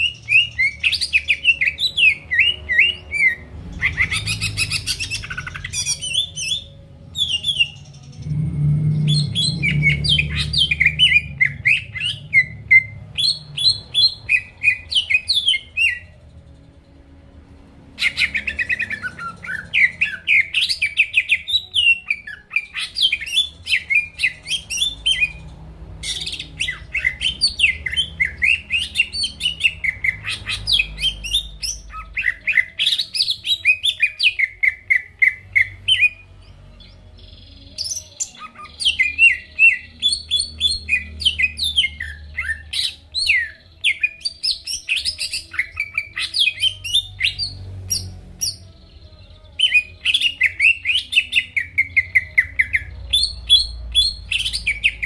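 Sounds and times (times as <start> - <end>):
bird warbling song: 0.0 - 16.2, 18.0 - 55.0.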